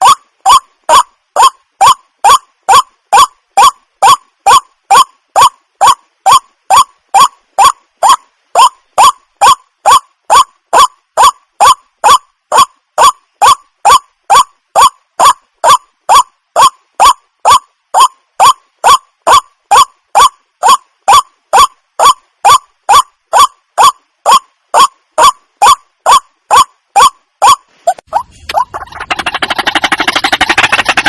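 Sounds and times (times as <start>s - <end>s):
waterhen calling: 21.6s - 31.0s.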